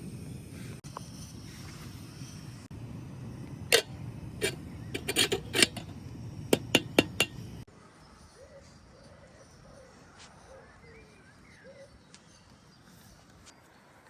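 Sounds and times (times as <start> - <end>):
cookware and utensils clinking: 3.7 - 7.6
faint bird chirps: 8.0 - 13.3.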